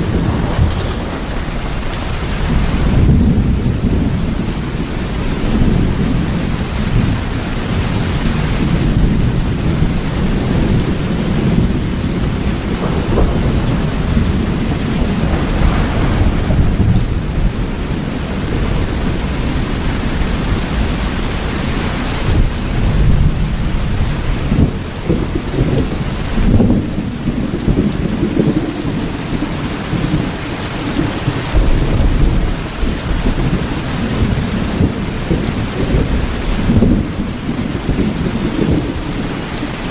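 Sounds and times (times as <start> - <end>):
deep rumble: 0.0 - 4.5, 11.8 - 19.7
heavy rain: 0.0 - 39.9.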